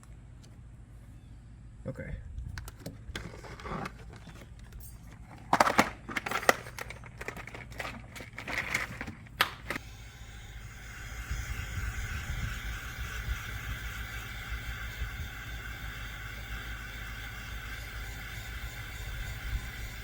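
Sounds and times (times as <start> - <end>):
steady hum: 5.8 - 20.0.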